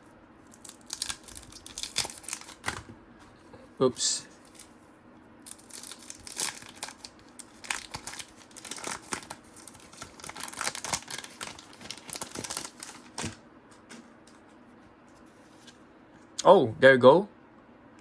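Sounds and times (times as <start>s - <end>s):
card wrapper crinkling and tearing: 0.4s - 2.9s, 4.4s - 4.7s, 5.4s - 13.4s.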